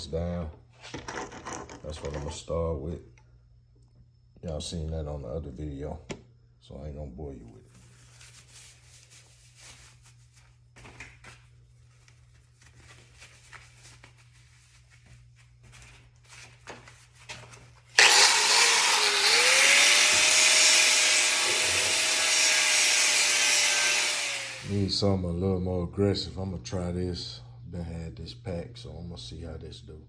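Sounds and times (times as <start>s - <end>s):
angle grinder grinding metal: 18.0s - 24.9s.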